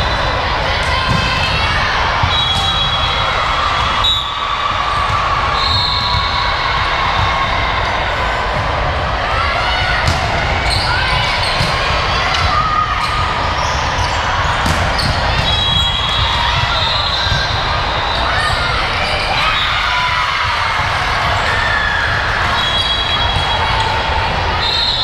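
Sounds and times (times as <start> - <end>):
hum of crowd voices: 0.0 - 25.0
volleyball hits: 0.8 - 7.6, 9.8 - 18.3
sneakers squeaking on court floor: 10.6 - 19.8.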